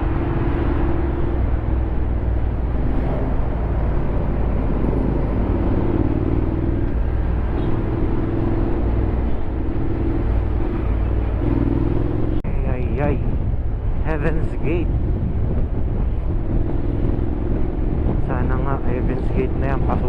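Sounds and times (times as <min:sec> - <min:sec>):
scooter engine humming: 0:00.0 - 0:12.4.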